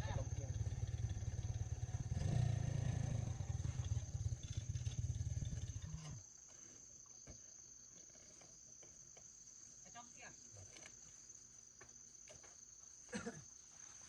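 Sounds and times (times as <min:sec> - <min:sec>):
small engine running: 0:00.0 - 0:06.2
crickets chirping: 0:00.0 - 0:14.0.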